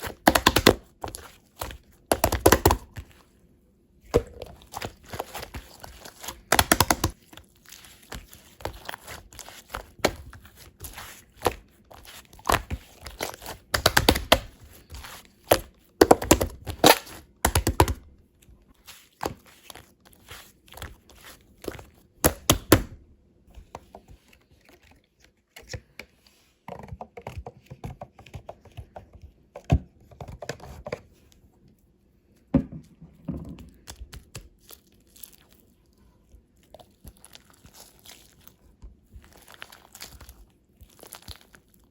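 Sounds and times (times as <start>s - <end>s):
hands squishing slime: 0.0s - 3.3s, 4.0s - 18.1s, 18.7s - 23.0s, 33.8s - 41.9s.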